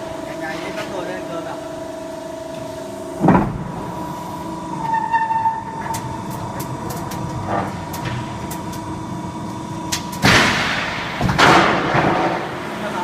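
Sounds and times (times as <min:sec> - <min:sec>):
hydraulic pump motor humming: 0:00.0 - 0:10.2.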